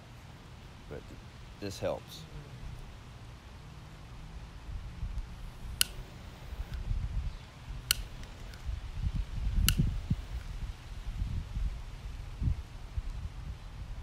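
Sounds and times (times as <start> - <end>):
sharp clicks: 5.2 - 6.0, 7.8 - 8.7, 9.6 - 10.5.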